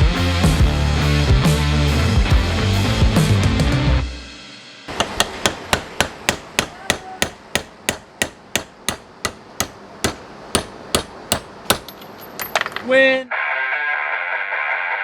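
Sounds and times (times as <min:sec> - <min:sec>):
hammer blows ringing: 0:04.9 - 0:12.5.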